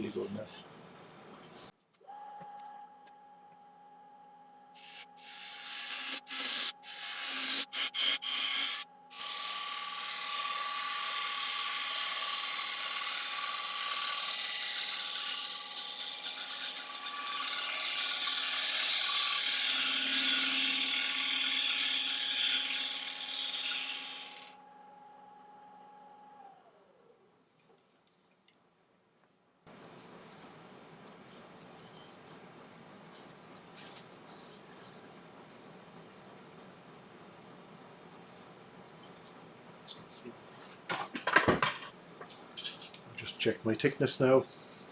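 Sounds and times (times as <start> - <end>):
tool hissing on spinning wood: 4.8 - 24.5
wood lathe motor whine: 4.8 - 27.1.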